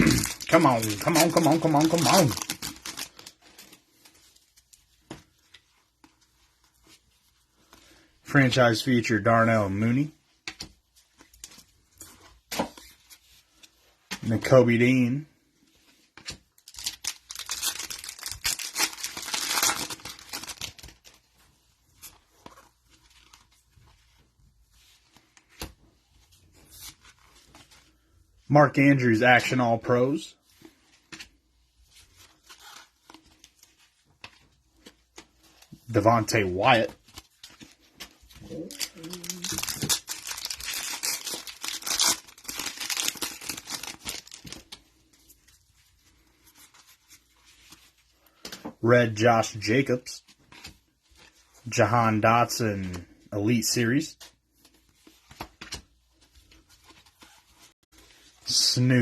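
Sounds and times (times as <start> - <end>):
foil wrapper tearing and crinkling: 0.0 - 4.1, 16.5 - 21.2, 38.4 - 44.7
faint handling sounds: 0.5 - 18.4, 19.8 - 59.0.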